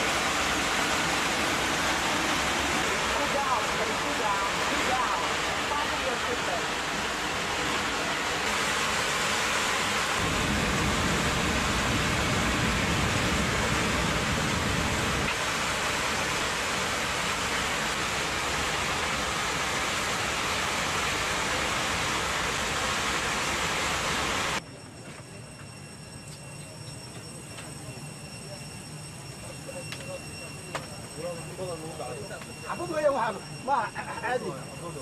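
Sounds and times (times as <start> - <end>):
air rushing in airliner cabin: 6.9 - 24.6.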